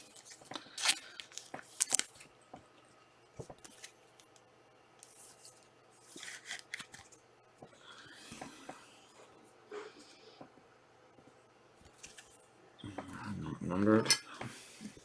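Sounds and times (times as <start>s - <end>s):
trading cards and packaging rustling: 0.0s - 2.3s, 3.4s - 4.4s, 5.0s - 7.2s.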